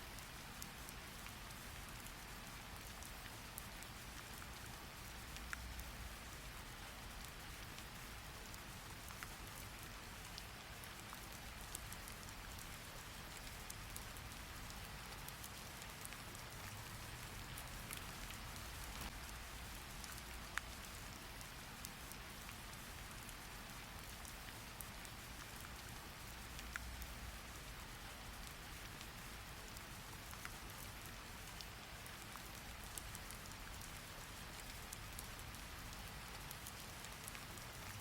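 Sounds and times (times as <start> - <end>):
steady rain hiss: 0.0 - 38.0
faint ticks: 0.1 - 38.0.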